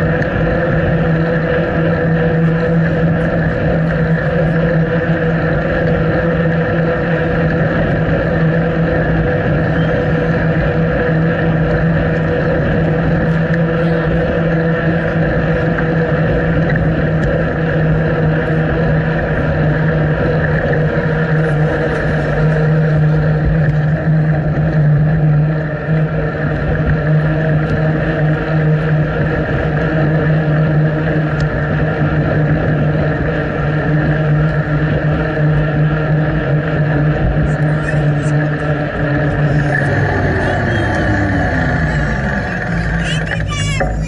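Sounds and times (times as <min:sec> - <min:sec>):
loud droning hum: 0:00.0 - 0:44.0
rushing noise: 0:39.2 - 0:44.0.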